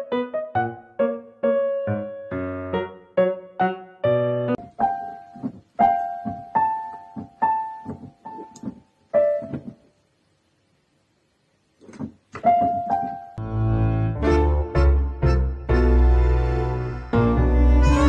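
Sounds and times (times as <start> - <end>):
fuller music with deep notes: 13.4 - 18.0.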